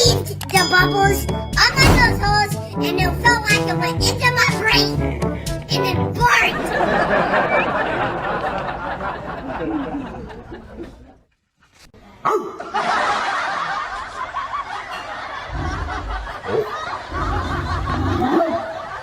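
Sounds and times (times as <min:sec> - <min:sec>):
people laughing: 0:06.6 - 0:11.2, 0:12.6 - 0:19.0.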